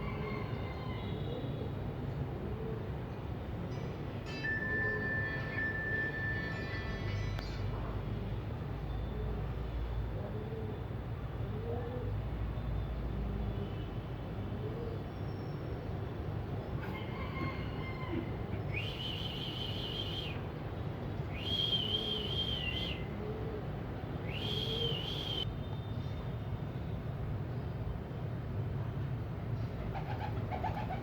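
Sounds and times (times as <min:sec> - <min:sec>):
low rumble of traffic: 0:00.0 - 0:31.0
bird whistling call: 0:18.7 - 0:20.4, 0:21.3 - 0:23.1, 0:24.2 - 0:25.5.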